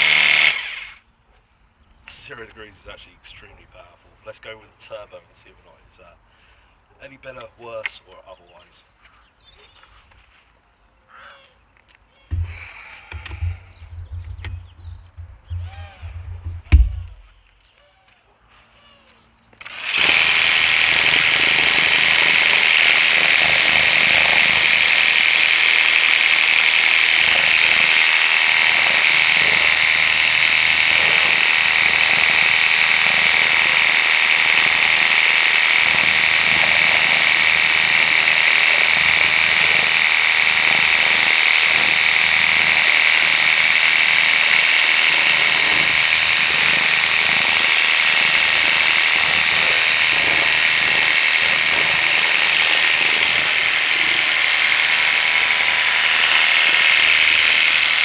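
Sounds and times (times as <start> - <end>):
pressure washer whine: 0.0 - 1.0, 12.3 - 17.3, 19.6 - 58.0.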